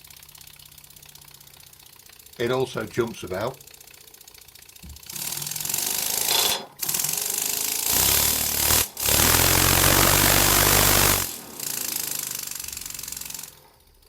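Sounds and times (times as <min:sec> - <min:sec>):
engine rattling on its base: 0:00.0 - 0:14.0
model steam engine chattering: 0:00.7 - 0:13.7.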